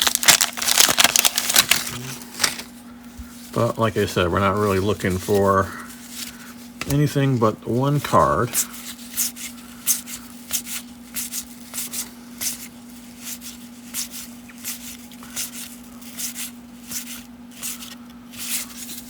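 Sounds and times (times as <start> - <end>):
steady low hum: 0.0 - 19.0
cards sliding papery swish: 8.6 - 19.0.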